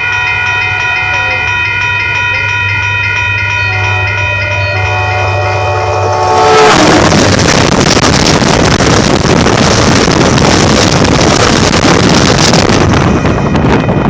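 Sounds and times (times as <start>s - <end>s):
train rushing and clattering: 0.0s - 14.0s
train horn: 3.6s - 7.4s.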